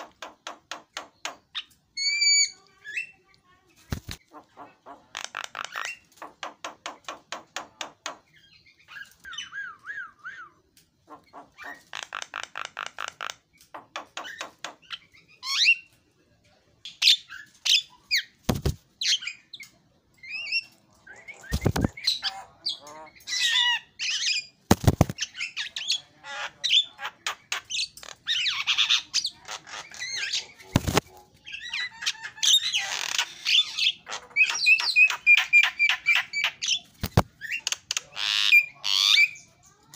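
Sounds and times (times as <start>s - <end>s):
bird singing chattering song: 8.0s - 15.9s, 16.8s - 39.9s.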